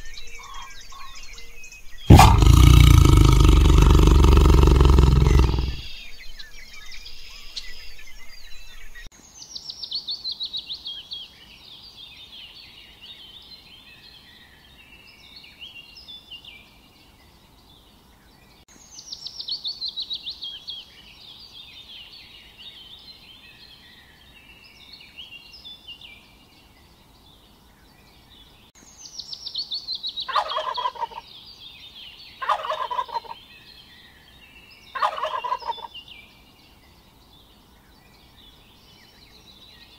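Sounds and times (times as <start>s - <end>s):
high bird calls and chirps: 0.0s - 11.3s, 28.0s - 39.9s
turkeys gobbling: 30.3s - 31.2s, 32.4s - 33.4s, 35.0s - 35.9s.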